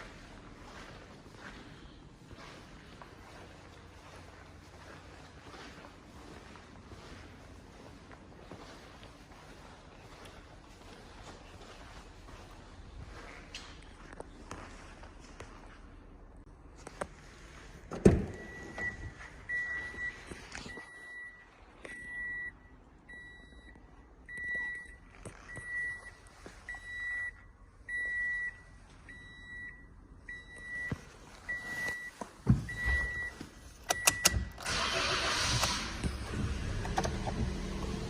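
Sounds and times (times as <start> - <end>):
car warning chime beeping: 18.2 - 35.5.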